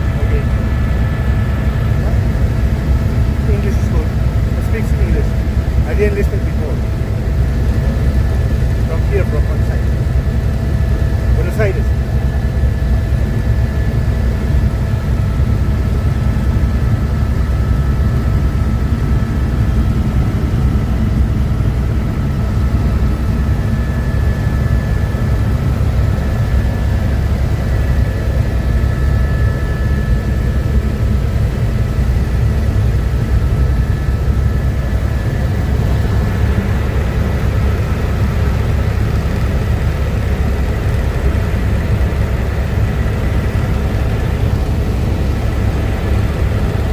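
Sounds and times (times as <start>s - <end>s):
helicopter engine and rotor: 0.0s - 46.9s
faint whines: 17.4s - 46.9s.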